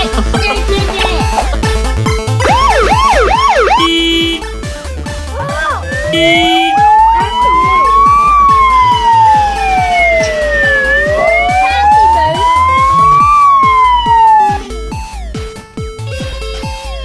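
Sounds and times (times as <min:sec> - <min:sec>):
background music with steady beat: 0:00.0 - 0:17.0
siren wailing: 0:02.4 - 0:04.6, 0:05.3 - 0:14.9.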